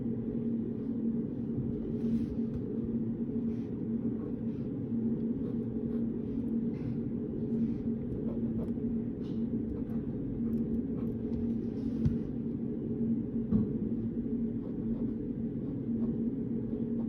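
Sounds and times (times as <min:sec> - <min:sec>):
low hum: 0:00.0 - 0:17.0
pen tapping and scratching paper: 0:05.2 - 0:12.3.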